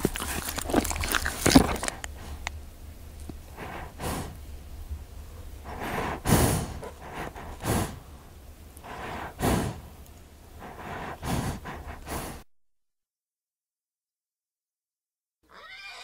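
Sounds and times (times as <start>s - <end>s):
horse snorting and blowing: 5.7s - 8.0s, 8.9s - 9.8s, 10.6s - 12.4s.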